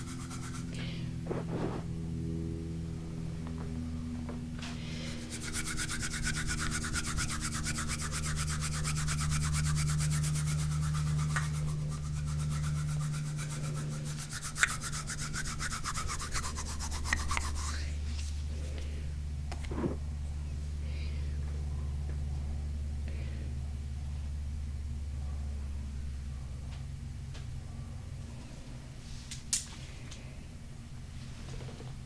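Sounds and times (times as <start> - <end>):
fast scratching on stone: 0.0 - 0.8, 5.1 - 17.9.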